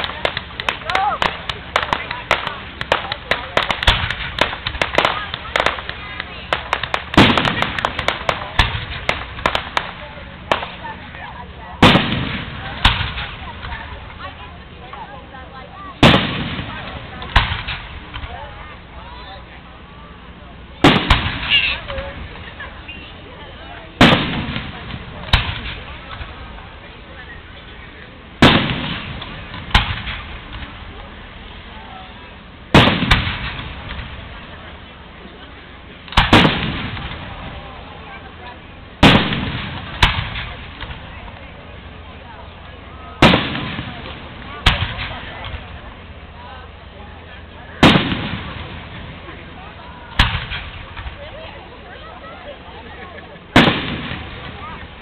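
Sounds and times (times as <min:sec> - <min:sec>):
loud firework bang: 0:00.0 - 0:10.9, 0:11.8 - 0:13.9, 0:16.0 - 0:18.4, 0:20.8 - 0:22.6, 0:24.0 - 0:26.4, 0:28.4 - 0:30.8, 0:32.7 - 0:34.3, 0:36.1 - 0:37.6, 0:39.0 - 0:41.1, 0:43.2 - 0:45.7, 0:47.8 - 0:49.2, 0:50.2 - 0:51.2, 0:53.5 - 0:54.8
fireworks crackling and popping: 0:00.0 - 0:55.0.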